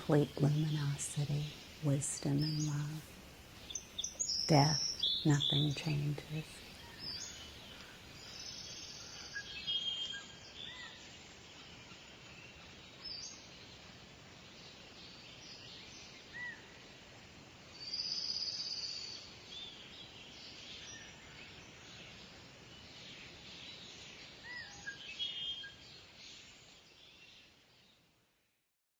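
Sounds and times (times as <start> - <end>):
birds chirping: 0.0 - 11.1
steady background hiss: 0.0 - 28.5.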